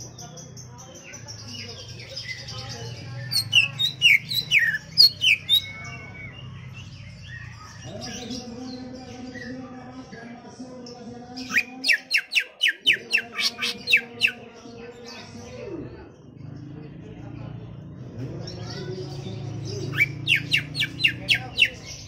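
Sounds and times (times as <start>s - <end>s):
bird whistled song: 3.2s - 7.8s, 11.5s - 14.4s, 19.9s - 21.8s.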